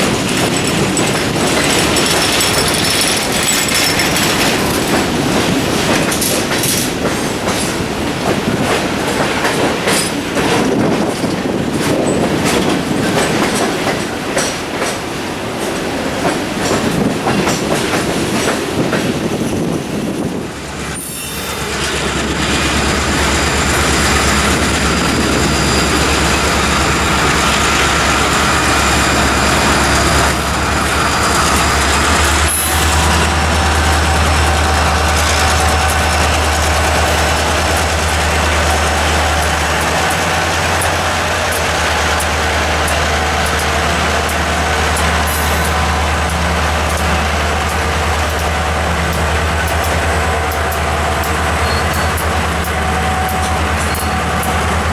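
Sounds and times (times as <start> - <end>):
wheels clicking over rail joints: 0.0 - 20.3, 21.8 - 54.9
diesel locomotive engine droning: 0.0 - 54.9
wheel squeal: 50.6 - 52.4.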